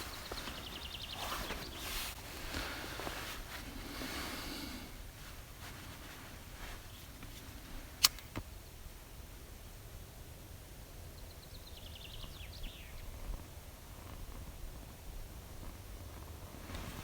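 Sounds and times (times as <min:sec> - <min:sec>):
songbird trilling: 0:00.0 - 0:01.9.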